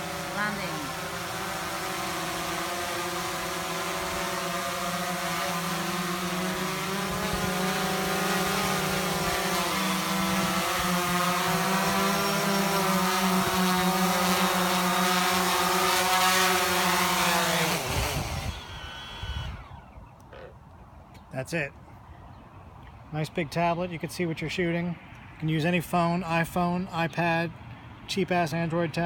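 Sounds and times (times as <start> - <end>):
drone propellers buzzing: 0.0 - 20.6.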